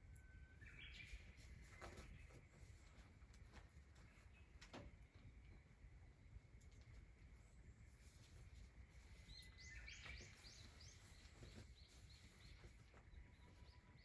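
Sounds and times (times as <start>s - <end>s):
songbird chirping: 0.0s - 2.8s, 8.9s - 14.0s.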